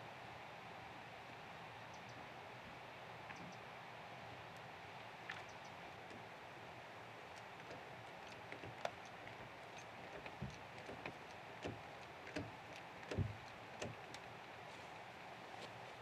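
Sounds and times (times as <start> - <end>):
knocks and taps on timber: 10.0 - 14.2.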